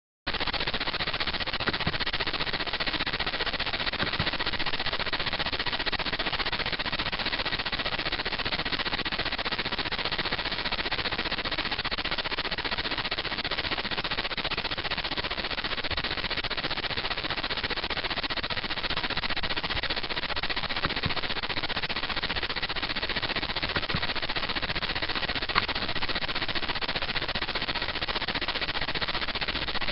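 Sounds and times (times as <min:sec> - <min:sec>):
phone line static hiss: 0:00.3 - 0:29.9
rapid crackle: 0:00.3 - 0:29.9.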